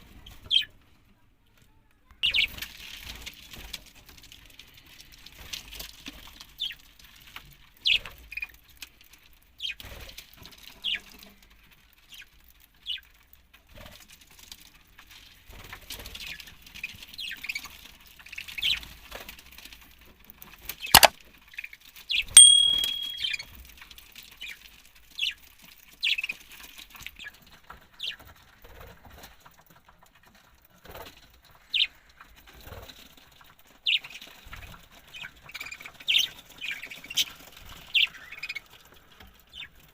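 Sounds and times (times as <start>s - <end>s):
held whistle note: 22.4s - 23.4s
sharp knock: 22.4s - 23.4s.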